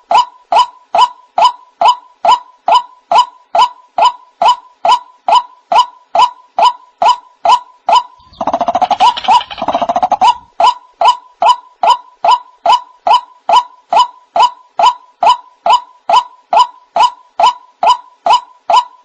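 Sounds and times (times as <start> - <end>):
rapid croaking chatter: 8.2 - 10.5
waterhen calling: 8.2 - 10.5.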